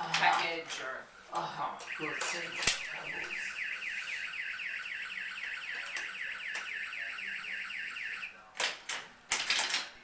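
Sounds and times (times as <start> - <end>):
toy electronic siren: 1.8 - 8.4.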